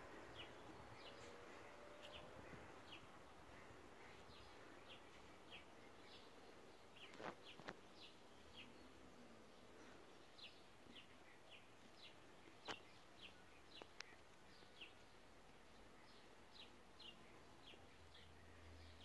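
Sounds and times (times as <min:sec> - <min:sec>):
soft clicks: 0:13.8 - 0:14.4.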